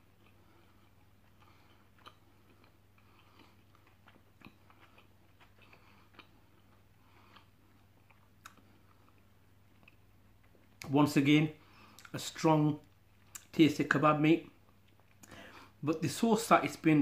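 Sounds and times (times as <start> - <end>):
faint wet chewing: 0.0 - 10.9, 11.7 - 12.2
mouth clicks and smacks: 11.9 - 12.2, 12.8 - 13.5.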